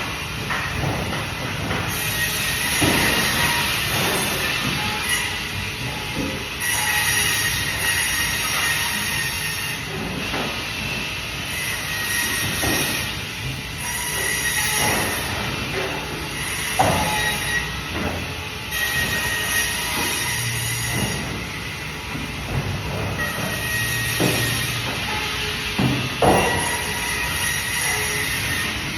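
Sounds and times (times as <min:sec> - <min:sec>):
band saw screeching: 0:01.9 - 0:09.9, 0:11.4 - 0:13.2, 0:13.8 - 0:17.9, 0:18.6 - 0:21.5, 0:23.1 - 0:28.9.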